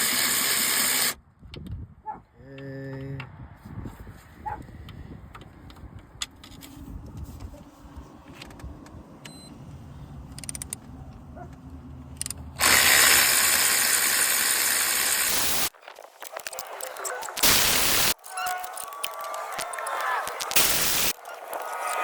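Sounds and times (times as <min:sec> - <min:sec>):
loud steady hiss: 0:12.6 - 0:15.7, 0:17.3 - 0:18.2, 0:20.2 - 0:22.0
hand tools clinking on metal: 0:18.2 - 0:22.0.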